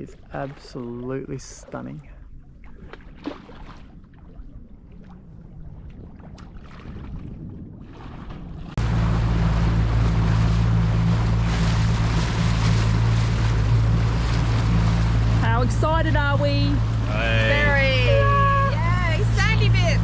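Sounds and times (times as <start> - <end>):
water lapping: 0.0 - 20.0
wind: 0.0 - 20.0
rushing water: 7.8 - 20.0
boat engine running: 8.3 - 20.0.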